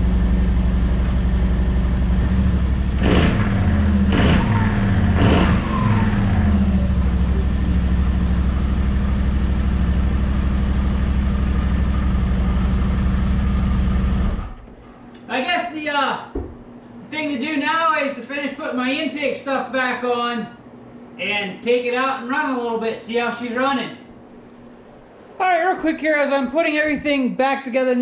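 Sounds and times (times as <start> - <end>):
engine running with throttle blips: 0.0 - 14.7.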